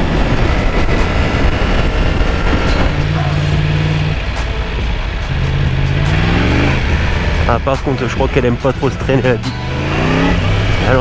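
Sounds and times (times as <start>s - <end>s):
wind rushing over microphone: 0.0s - 4.9s
motorcycle engine at speed: 0.0s - 11.0s.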